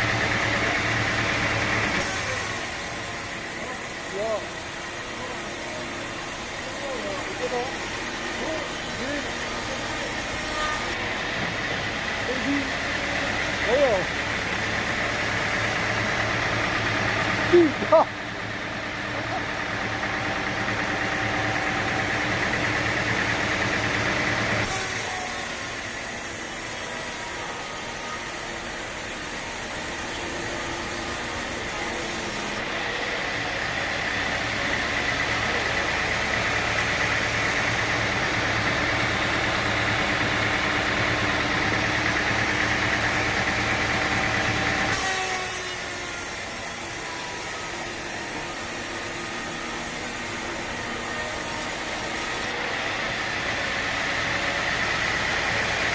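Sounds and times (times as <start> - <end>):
saw blade cutting log: 0.0 - 18.2, 18.8 - 55.9
engine running: 0.0 - 55.9.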